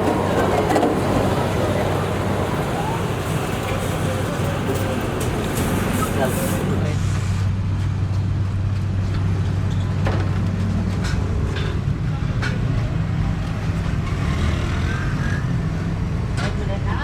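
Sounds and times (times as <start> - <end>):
machinery humming: 0.0 - 7.0.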